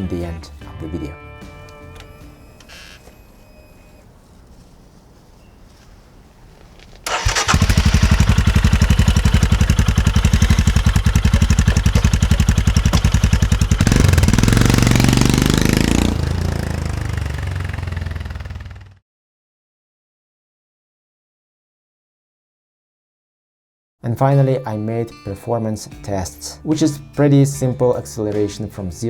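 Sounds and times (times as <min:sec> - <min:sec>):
motorcycle engine idling and revving: 0:07.0 - 0:19.0.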